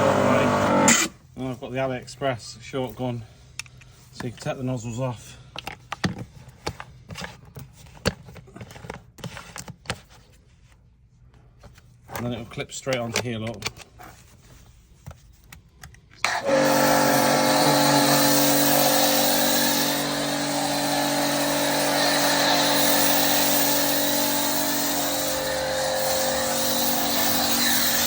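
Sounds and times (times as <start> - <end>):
pressure washer spraying: 16.3 - 28.0.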